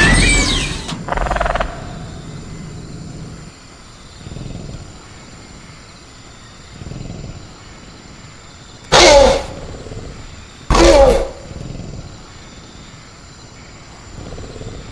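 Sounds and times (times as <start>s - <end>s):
low growl: 0.0s - 5.2s
crickets droning: 0.0s - 14.9s
creature screech: 8.9s - 9.6s.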